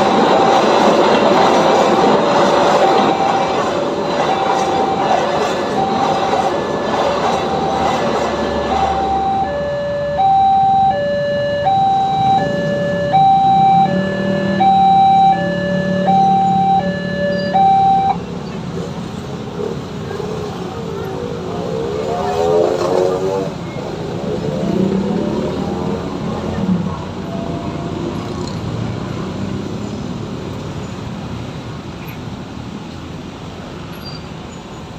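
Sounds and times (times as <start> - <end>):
railroad crossing two-tone alarm: 0.0 - 18.7, 24.7 - 29.2
passing train rumble: 0.0 - 34.9.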